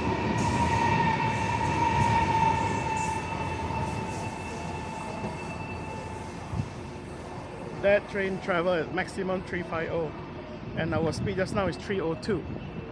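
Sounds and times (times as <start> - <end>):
wheels rumbling on rail: 0.0 - 8.6
electric train high whine: 0.0 - 10.8.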